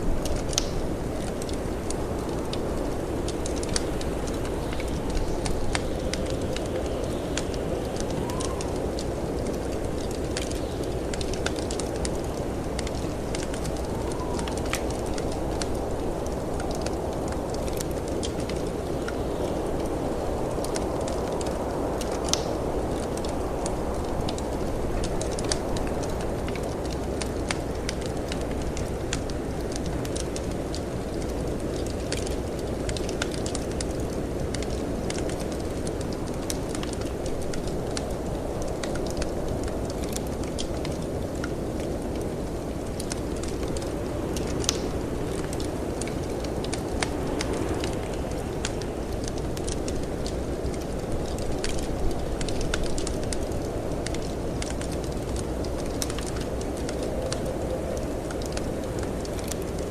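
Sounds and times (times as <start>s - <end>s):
wood fire crackling and popping: 0.0s - 59.9s
snowstorm wind rushing: 43.3s - 54.6s.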